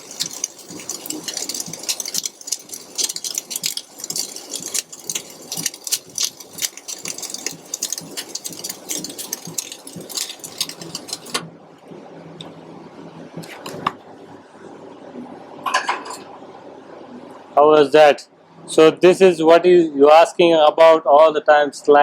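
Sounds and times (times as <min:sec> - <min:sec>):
welding arc crackling: 0:00.0 - 0:11.5.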